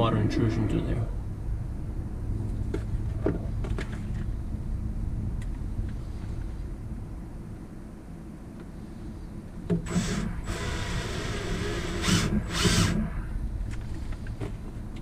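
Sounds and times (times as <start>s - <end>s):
power drill driving a screw: 9.8s - 13.3s.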